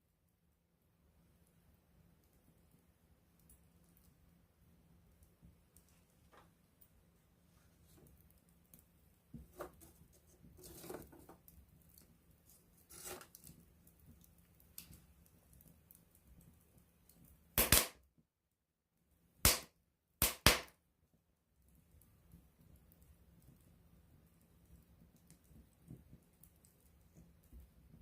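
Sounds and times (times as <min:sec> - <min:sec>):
campfire crackling: 0:01.3 - 0:17.9, 0:21.6 - 0:28.0
sharp pops from burning wood: 0:11.0 - 0:18.0, 0:19.4 - 0:20.8.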